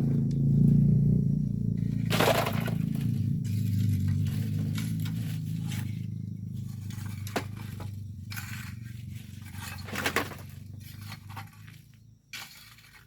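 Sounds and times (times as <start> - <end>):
low steady hum: 0.0 - 13.0
tools scraping through sand and stones: 1.9 - 13.0.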